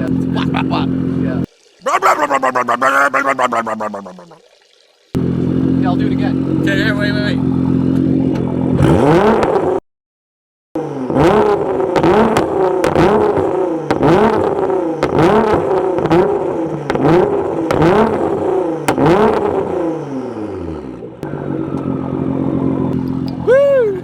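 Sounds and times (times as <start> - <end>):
car engine revving: 5.2 - 9.8, 10.8 - 23.6
exhaust cracks and bangs: 8.3 - 9.8, 11.1 - 22.2.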